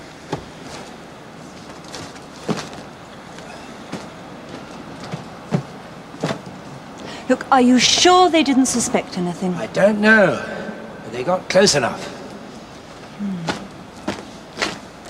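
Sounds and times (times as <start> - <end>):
steady rumbling noise: 0.0 - 15.0
irregular knocks and clatters: 1.6 - 6.6.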